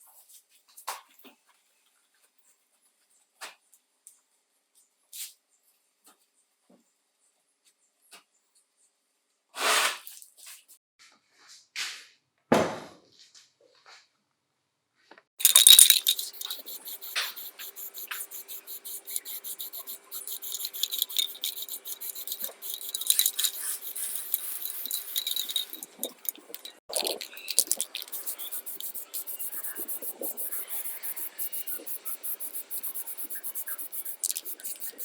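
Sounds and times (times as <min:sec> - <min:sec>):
knocks and clinks: 0:15.4 - 0:35.0
rapid scraping and clicking: 0:15.4 - 0:35.0.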